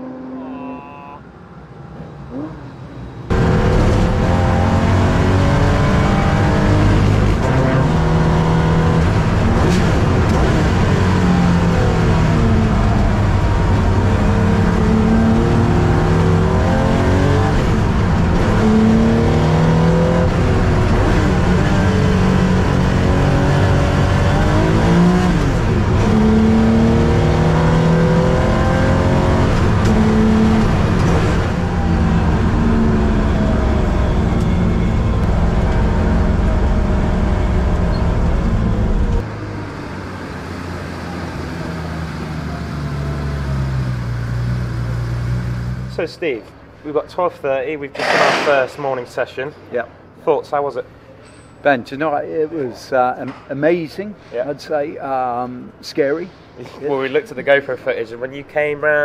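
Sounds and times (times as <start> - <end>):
race car engine revving: 2.3 - 39.7.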